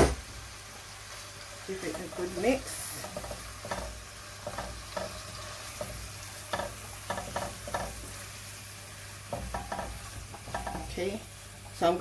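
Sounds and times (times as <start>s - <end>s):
chicken sizzling in hot oil: 0.0s - 12.0s
utensil scraping and knocking pot: 1.8s - 8.3s, 9.3s - 11.8s.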